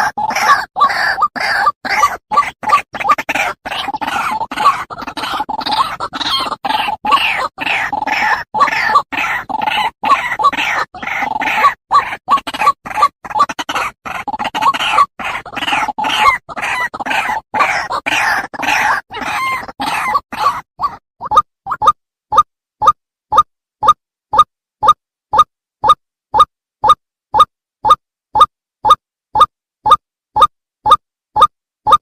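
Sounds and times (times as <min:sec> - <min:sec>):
animal chirping: 0:00.0 - 0:25.5.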